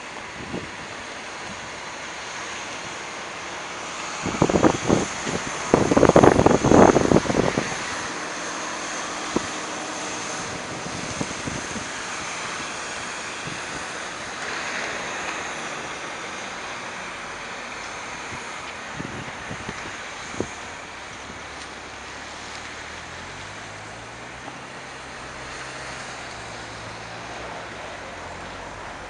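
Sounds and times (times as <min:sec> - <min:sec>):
street traffic: 0:00.0 - 0:29.0
wind rushing: 0:04.0 - 0:14.0.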